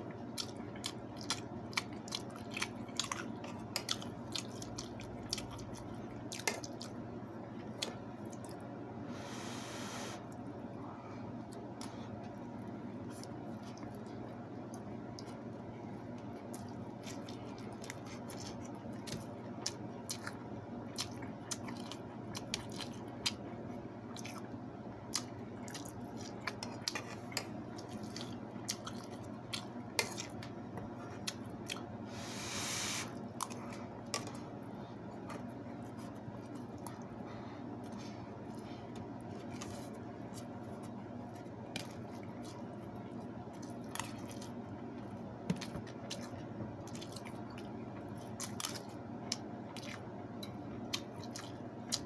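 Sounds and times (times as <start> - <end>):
steady low hum: 0.0 - 52.0
chewing and lip smacks: 0.3 - 7.0, 16.1 - 23.5, 25.1 - 31.9, 37.8 - 52.0.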